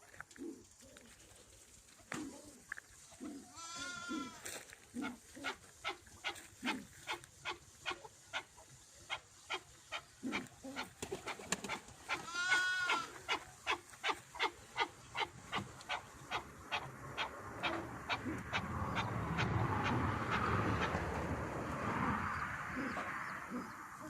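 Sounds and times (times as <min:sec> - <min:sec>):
partridge drawn-out cry: 0:03.5 - 0:04.4, 0:09.5 - 0:20.0.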